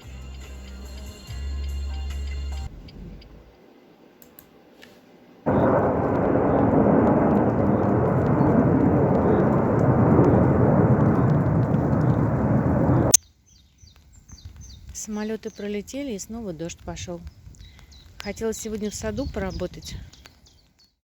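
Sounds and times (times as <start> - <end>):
aircraft roaring overhead: 5.5 - 13.2.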